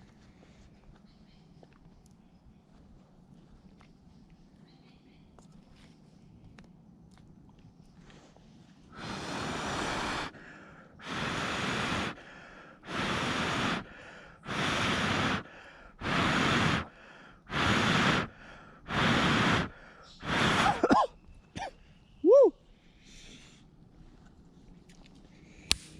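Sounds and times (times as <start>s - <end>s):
person blowing on embers: 8.9s - 10.4s, 11.0s - 21.1s.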